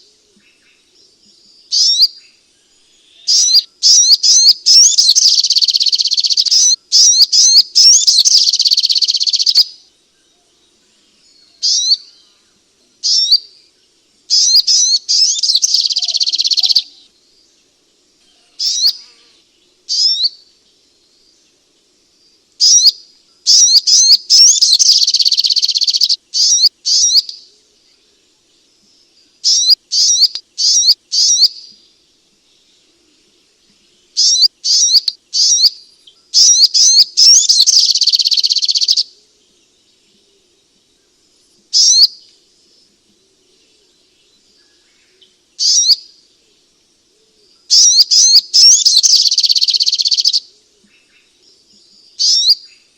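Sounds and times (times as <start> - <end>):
bird chirping trills: 0.0 - 52.9
single sharp bird chirps: 18.6 - 20.4.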